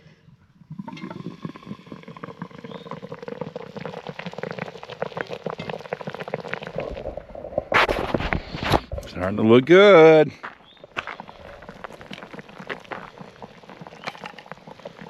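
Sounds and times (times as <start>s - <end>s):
meat sizzling and popping: 0.8s - 7.1s, 10.8s - 15.0s.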